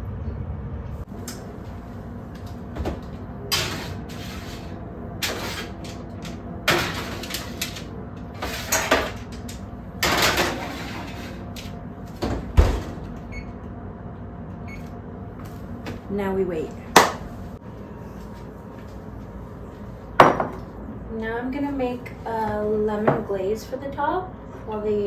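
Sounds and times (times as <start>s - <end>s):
steady low hum: 0.0s - 25.0s
pans and utensils clattering: 3.5s - 11.7s
heavy thump of door shutting: 12.1s - 13.3s.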